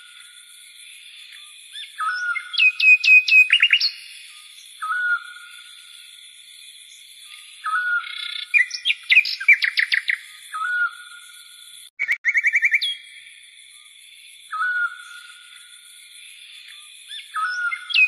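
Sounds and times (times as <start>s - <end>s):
bird whistling and chirping: 1.1s - 6.0s, 6.9s - 13.3s, 14.5s - 15.5s, 16.5s - 18.0s.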